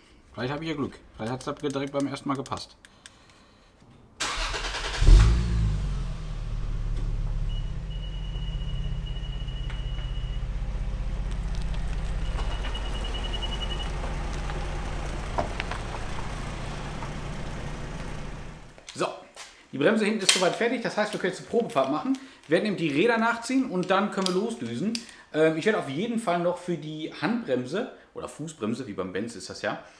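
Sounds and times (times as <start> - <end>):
car engine starting and idling: 4.2 - 18.8.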